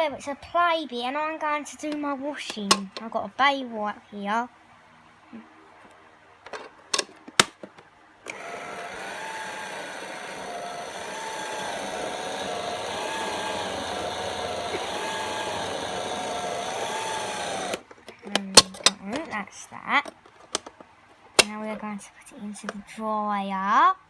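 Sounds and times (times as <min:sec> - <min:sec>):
toy switch clicks: 0:08.3 - 0:17.9
toy washing machine whirring: 0:08.3 - 0:17.9.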